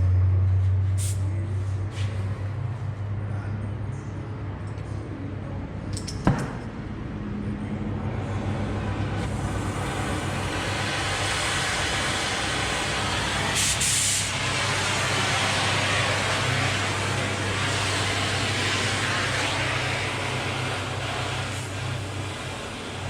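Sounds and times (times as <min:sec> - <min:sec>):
steady low hum: 0:00.0 - 0:23.0
cutting torch gas hiss: 0:09.2 - 0:23.0.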